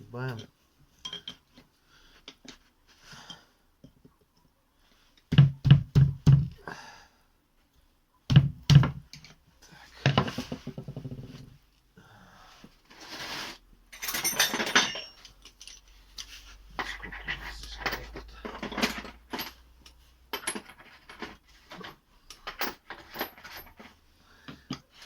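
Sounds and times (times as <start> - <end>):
metal tools clinking and knocking: 0.3 - 1.6, 13.9 - 24.0.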